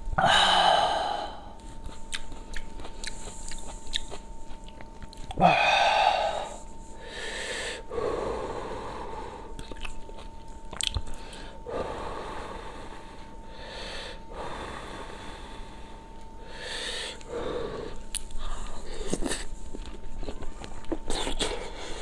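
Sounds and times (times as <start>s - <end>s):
person chewing: 1.5s - 6.7s, 9.5s - 11.5s, 17.1s - 22.0s
heavy breaths: 5.4s - 9.6s, 11.2s - 19.6s.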